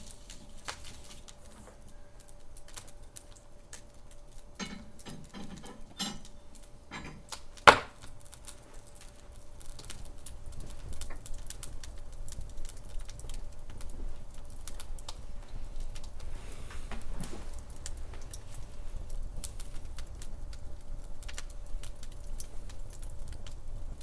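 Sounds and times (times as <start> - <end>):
low steady rumble: 0.0 - 24.0
wood fire crackling: 0.0 - 24.0
loud fire pop: 7.6 - 8.1.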